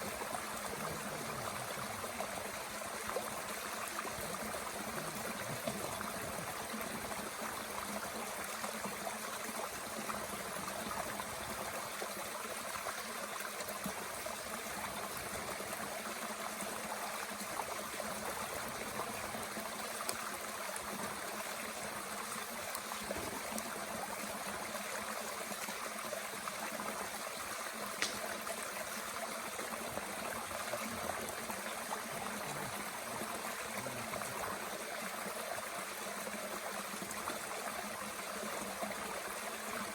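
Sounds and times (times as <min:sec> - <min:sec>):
stream flowing: 0:00.0 - 0:39.9
wood fire popping: 0:28.0 - 0:28.3.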